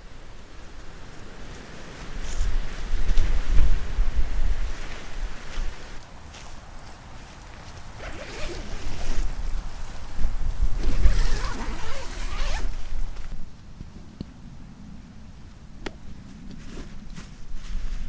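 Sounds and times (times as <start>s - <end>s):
gear rustling: 7.6s - 13.4s
zipper zipping: 8.0s - 9.5s, 10.8s - 13.4s.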